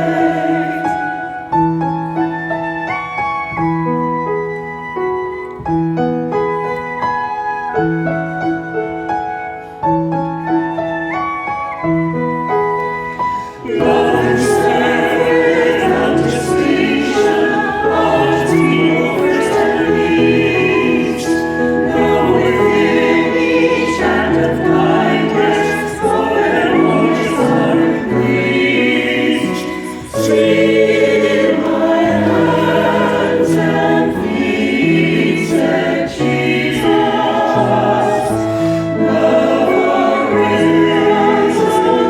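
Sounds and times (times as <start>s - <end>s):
choir singing: 0.0s - 3.4s, 13.2s - 42.0s
slow piano notes: 0.0s - 42.0s.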